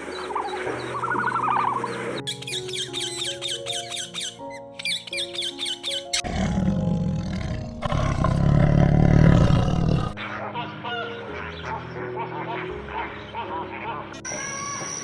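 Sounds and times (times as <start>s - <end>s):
soft background music: 0.0s - 15.0s
large animal roaring: 6.2s - 10.2s.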